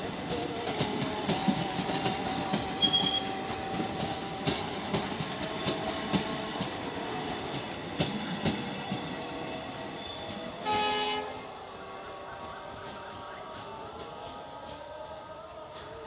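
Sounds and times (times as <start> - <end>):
crickets chirping: 0.0 - 16.0
train clicking over rail joints: 0.0 - 16.0
train horn blast: 1.3 - 4.1, 10.5 - 11.6.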